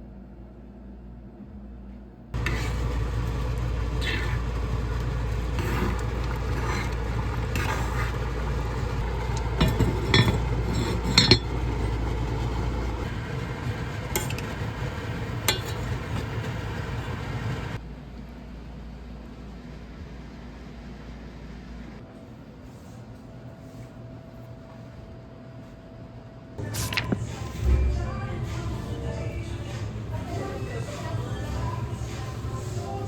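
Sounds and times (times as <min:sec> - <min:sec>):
utensils and dishes clinking: 0:02.4 - 0:13.1, 0:15.4 - 0:16.5, 0:26.6 - 0:33.0.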